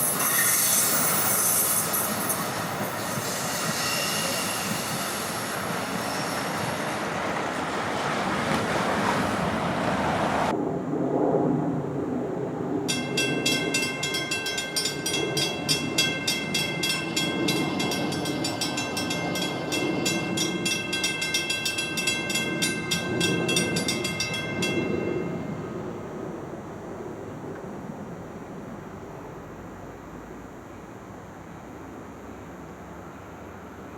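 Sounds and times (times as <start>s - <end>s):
train rumbling: 0.0s - 10.6s, 12.9s - 30.2s
bell ringing rapidly: 12.9s - 25.6s.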